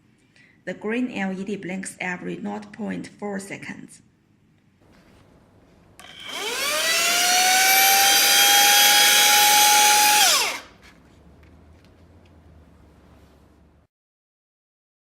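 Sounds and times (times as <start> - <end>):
handheld vacuum motor whine: 6.0 - 10.8.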